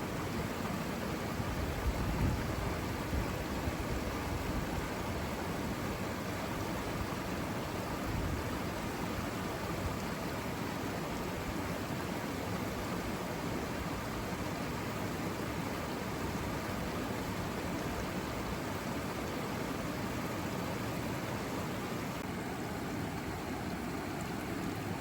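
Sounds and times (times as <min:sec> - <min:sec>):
river water rushing: 0:00.0 - 0:25.0
wind rumble on microphone: 0:01.5 - 0:05.0.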